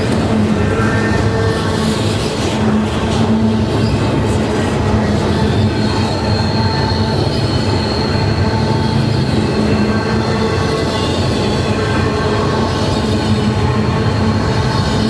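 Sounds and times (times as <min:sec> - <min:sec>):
freight train rumbling past: 0:00.0 - 0:15.0
high wheel squeal: 0:03.4 - 0:15.0.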